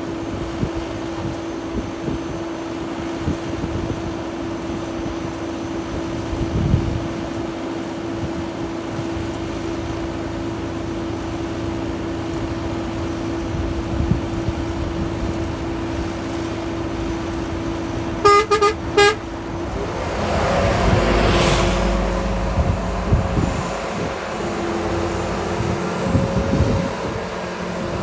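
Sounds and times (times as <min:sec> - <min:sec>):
engine hum: 0:00.0 - 0:28.0
vehicle horn tooting: 0:18.2 - 0:19.4.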